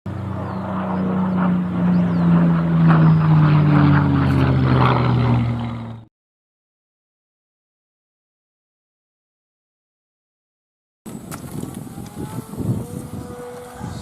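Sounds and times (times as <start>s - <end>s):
model plane propeller drone: 0.1s - 6.1s, 11.1s - 14.0s.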